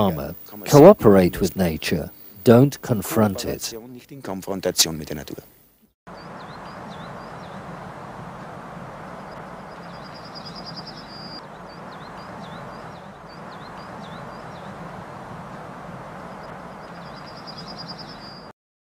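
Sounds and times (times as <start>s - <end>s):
outdoor background noise: 0.0s - 18.5s
songbird trilling and chirping: 6.1s - 7.7s, 9.1s - 15.0s, 16.4s - 18.5s.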